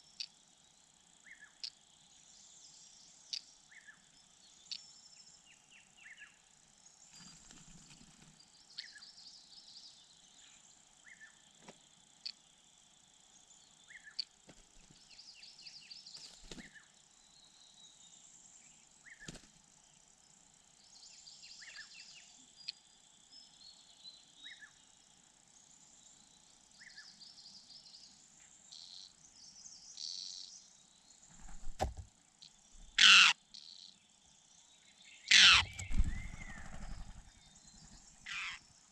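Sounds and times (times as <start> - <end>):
crickets trilling: 0.0 - 38.9
short bird chirps: 35.3 - 37.2.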